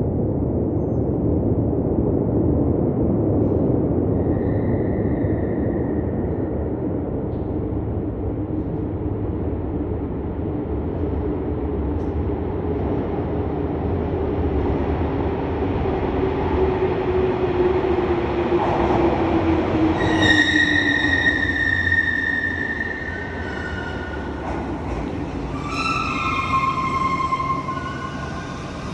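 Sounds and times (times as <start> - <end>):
electric train rumbling: 0.0 - 28.9
wheels or brakes squealing: 4.1 - 6.2, 19.8 - 28.9
train motor hum: 16.5 - 28.9.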